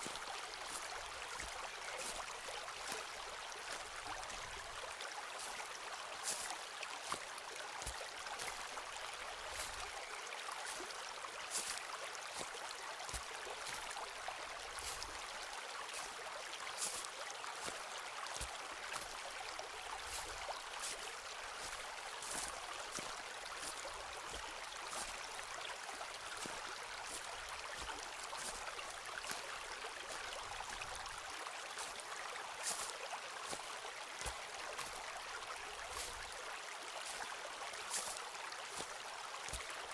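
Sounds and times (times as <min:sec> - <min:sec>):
footsteps on leaves and twigs: 0:00.0 - 0:04.6, 0:06.2 - 0:10.9, 0:11.5 - 0:14.0, 0:14.7 - 0:15.2, 0:16.8 - 0:19.2, 0:19.9 - 0:25.5, 0:26.1 - 0:31.2, 0:32.6 - 0:33.6, 0:34.2 - 0:35.0, 0:35.9 - 0:36.4, 0:37.0 - 0:37.3, 0:37.9 - 0:39.7.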